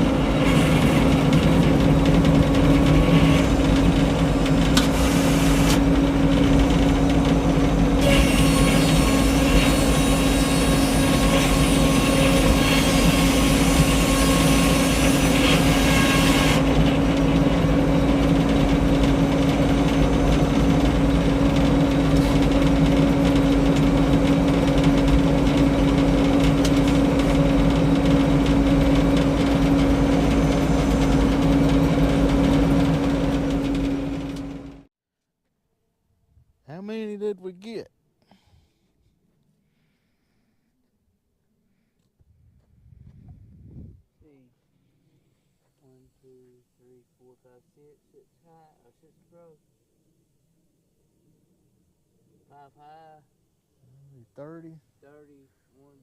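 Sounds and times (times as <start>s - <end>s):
sawmill mechanical drone: 0.0s - 34.9s.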